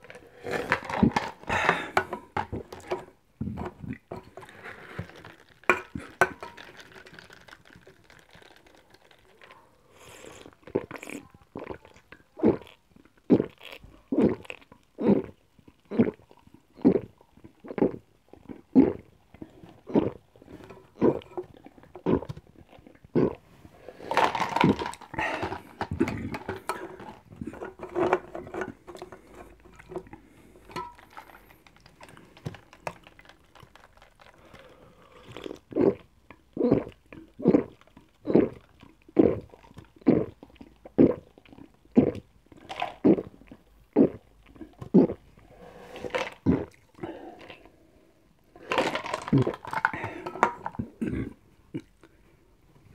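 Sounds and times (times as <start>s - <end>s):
person gulping cola: 0.0s - 52.2s.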